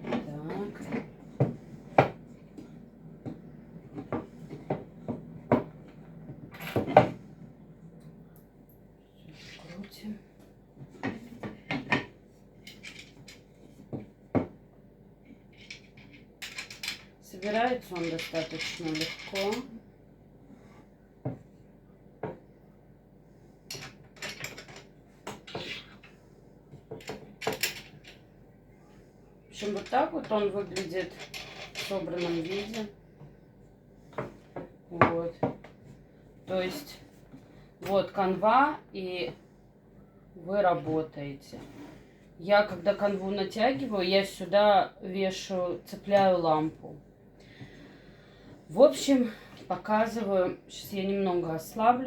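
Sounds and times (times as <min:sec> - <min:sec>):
knocks and clatter of parts: 0:23.7 - 0:25.7.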